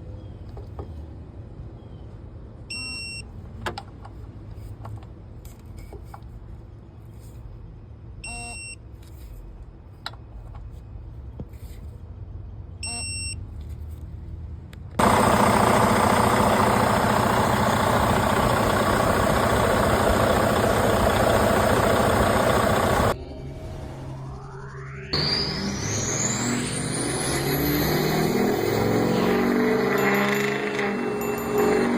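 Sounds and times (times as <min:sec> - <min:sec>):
low mechanical hum: 0:00.0 - 0:29.6
short electronic beeps: 0:02.7 - 0:03.3, 0:08.2 - 0:08.8, 0:12.8 - 0:13.4
loud mechanical running noise: 0:15.0 - 0:23.2, 0:24.3 - 0:31.9.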